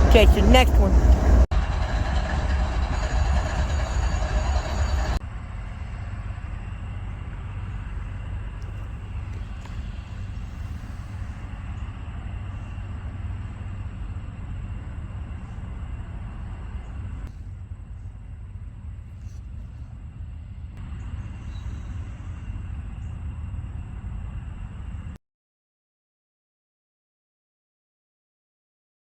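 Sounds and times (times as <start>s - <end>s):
loud rumbling noise: 0.0s - 25.1s
steady low rumble: 0.0s - 25.2s.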